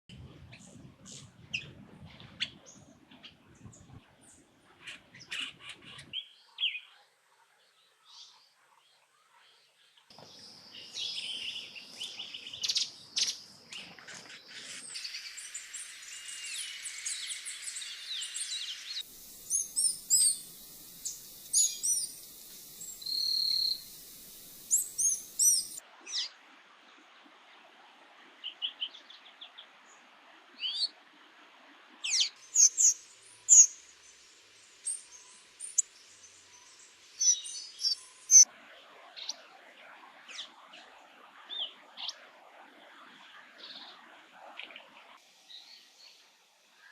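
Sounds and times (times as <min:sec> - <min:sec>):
bird chirps and calls: 0:16.4 - 0:25.8
bird trills: 0:19.2 - 0:25.8.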